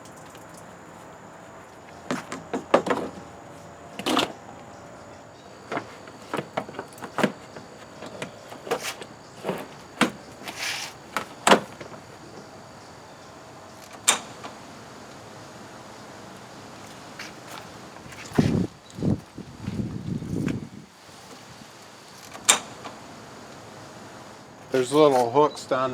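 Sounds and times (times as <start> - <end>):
engine parts clattering and clicking: 0.0 - 15.3, 22.1 - 23.1
faint steady background hum: 0.0 - 25.9
hiss-like rustle: 3.3 - 25.5.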